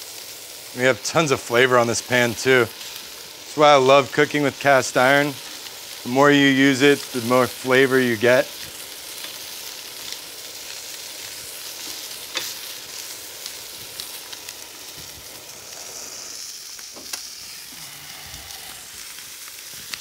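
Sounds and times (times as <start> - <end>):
shrimp sizzling in a pan: 0.0 - 20.0
metal tongs clicking on pan: 12.3 - 12.6.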